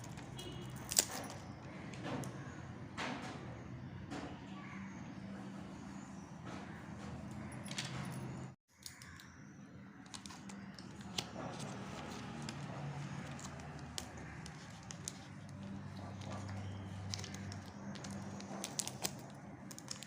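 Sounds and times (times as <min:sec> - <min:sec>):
wrappers crinkling and rustling: 0:10.1 - 0:20.0.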